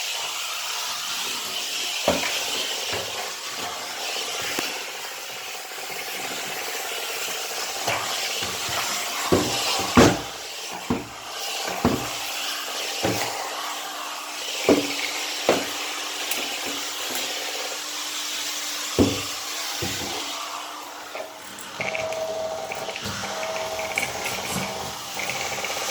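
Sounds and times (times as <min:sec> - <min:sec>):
steam cleaner hissing: 0:00.0 - 0:25.9
rubbing on bathtub: 0:07.7 - 0:17.4, 0:18.9 - 0:25.9
sharp knocks: 0:19.0 - 0:20.3.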